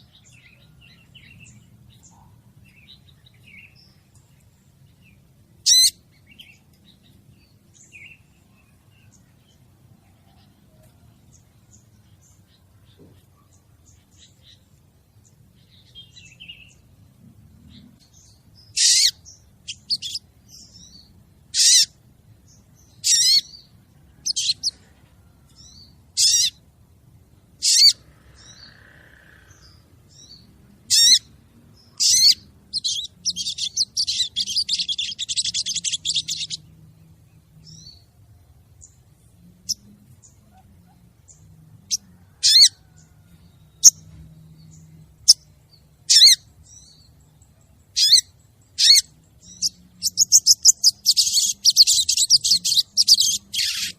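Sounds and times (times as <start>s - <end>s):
bird high-pitched calls: 5.6s - 6.6s, 18.7s - 20.2s, 20.9s - 22.0s, 22.9s - 24.9s, 25.8s - 26.6s, 27.6s - 31.3s, 31.9s - 36.6s, 41.9s - 43.0s, 46.1s - 47.1s, 47.9s - 53.9s.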